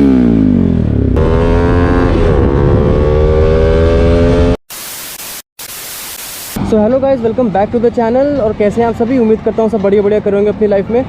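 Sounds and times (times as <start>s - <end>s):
motorcycle engine accelerating: 0.0s - 4.6s.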